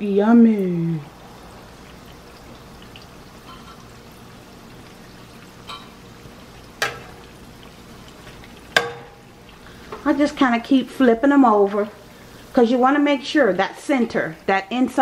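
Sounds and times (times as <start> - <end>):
dough sizzling in oil: 0.0 - 15.0
metal spoon clinking on pan: 5.7 - 6.0, 6.8 - 7.2, 8.8 - 9.2.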